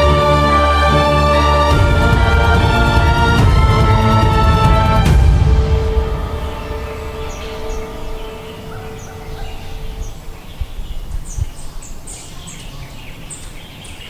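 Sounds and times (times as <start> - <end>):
background music note: 0.0 - 10.8
low rumble: 0.0 - 11.5
birds chirping: 0.0 - 14.0.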